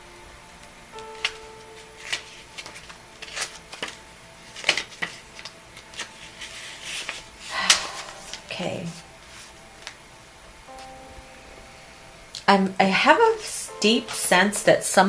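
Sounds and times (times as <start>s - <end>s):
paper rustling: 1.2s - 10.0s
cards clicking and tapping: 2.0s - 8.5s.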